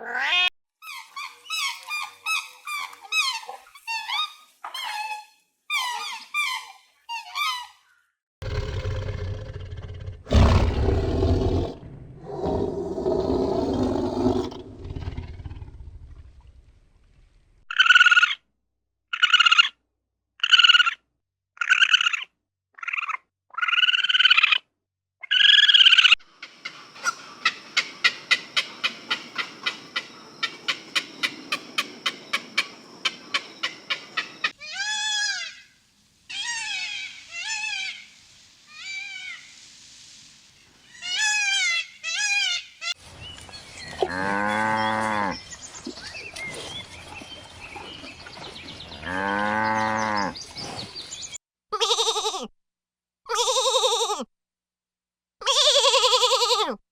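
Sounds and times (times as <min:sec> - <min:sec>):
clicking calls and falling chirps: 0:26.4 - 0:34.6
young animal high-pitched calls: 0:34.2 - 0:35.7, 0:36.3 - 0:38.1.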